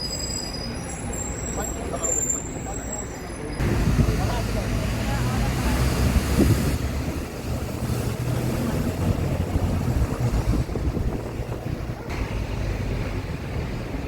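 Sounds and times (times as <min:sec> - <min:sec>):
boat engine running: 0:03.6 - 0:13.8.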